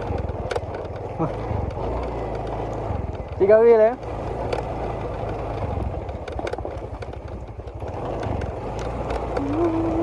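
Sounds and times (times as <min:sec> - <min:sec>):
small engine humming: 0:00.0 - 0:10.0.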